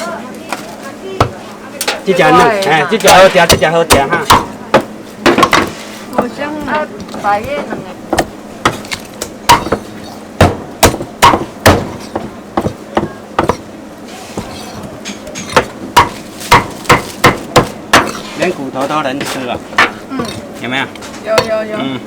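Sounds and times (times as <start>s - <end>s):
cleaver chopping chicken: 2.4s - 6.7s, 8.2s - 13.6s, 14.4s - 20.5s.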